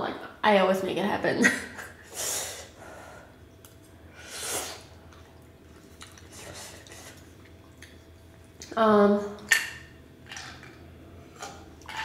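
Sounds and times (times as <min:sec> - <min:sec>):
wet chewing: 0:04.7 - 0:08.8.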